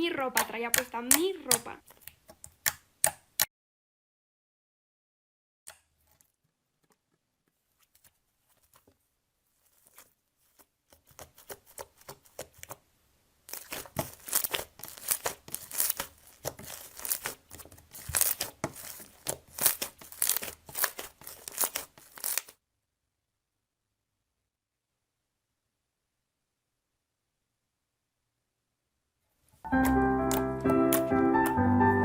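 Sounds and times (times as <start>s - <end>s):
slime squished crackling: 0.1s - 3.4s, 5.7s - 22.6s, 29.6s - 31.6s.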